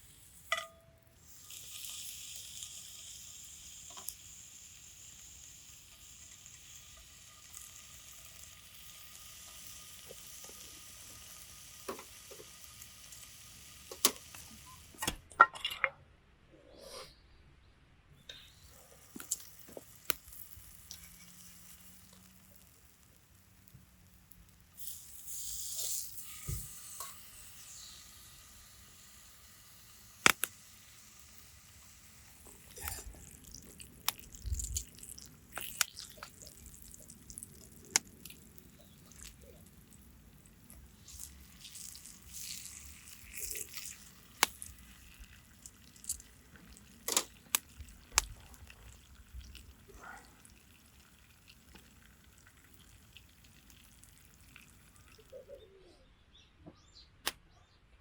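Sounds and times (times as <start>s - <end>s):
hiss: 1.2s - 14.8s, 24.8s - 33.1s.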